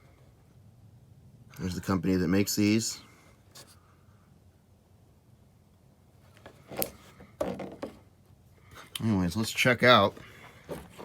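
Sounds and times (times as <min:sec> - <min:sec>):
rubbing of object being handled: 0:10.0 - 0:11.0.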